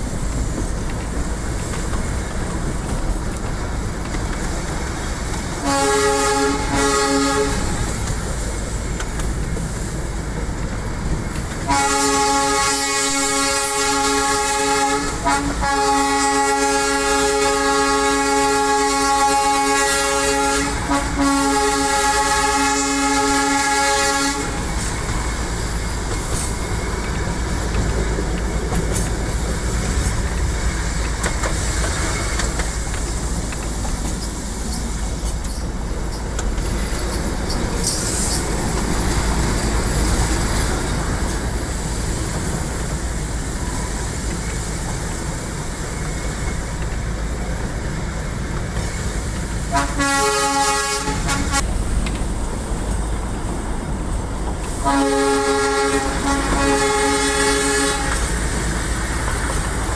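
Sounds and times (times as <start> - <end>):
train carriage rumbling and rattling: 0.0 - 59.9
train horn blasts: 5.6 - 8.0, 11.6 - 24.7, 49.7 - 51.7, 54.8 - 58.4.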